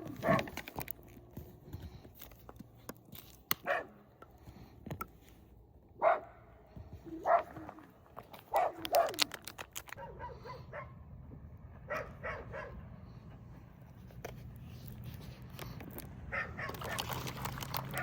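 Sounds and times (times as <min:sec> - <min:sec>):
dog barking: 0:00.1 - 0:00.5, 0:03.6 - 0:04.0, 0:06.0 - 0:06.4, 0:07.1 - 0:07.8, 0:08.5 - 0:09.3, 0:09.9 - 0:11.0, 0:11.9 - 0:12.8, 0:16.3 - 0:17.0.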